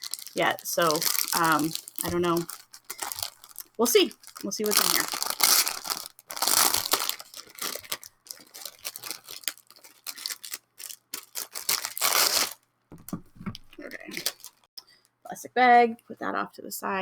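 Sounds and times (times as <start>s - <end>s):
cellophane tearing and crinkling: 0.0s - 12.6s, 13.8s - 14.7s.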